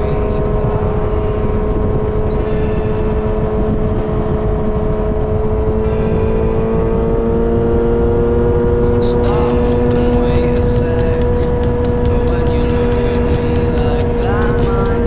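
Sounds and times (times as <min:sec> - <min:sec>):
motorcycle engine running: 0:03.2 - 0:15.0.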